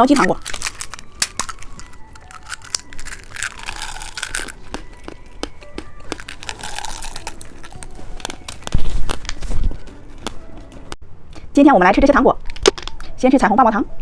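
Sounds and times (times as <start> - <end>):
plastic wrapper crinkling and tearing: 0.0 - 10.4.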